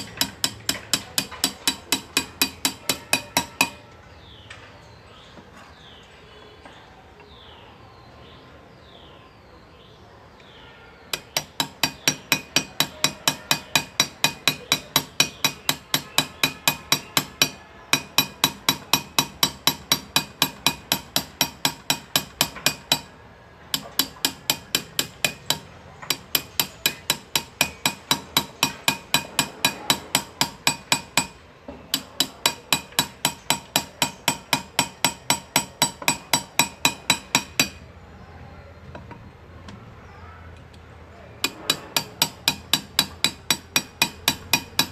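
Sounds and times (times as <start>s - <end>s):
hammer tapping chisel into metal: 0.0s - 4.0s, 11.1s - 37.9s, 41.4s - 44.9s.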